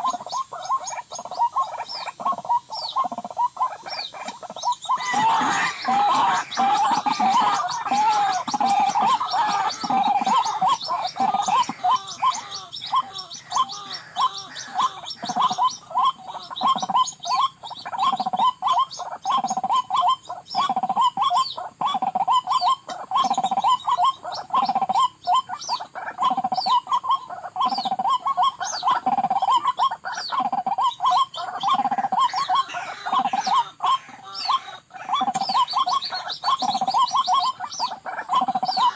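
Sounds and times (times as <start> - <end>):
waterhens calling: 0.0 - 38.9.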